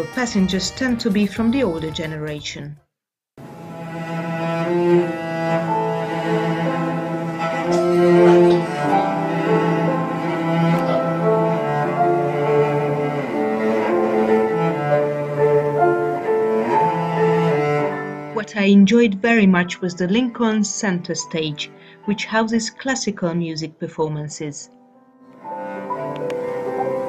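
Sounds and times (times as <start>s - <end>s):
string quartet playing: 3.4s - 18.4s.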